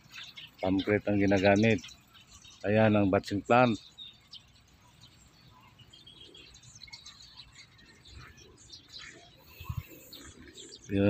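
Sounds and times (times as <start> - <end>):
faint birds chirping: 0.0 - 11.0
outdoor background noise: 0.0 - 11.0.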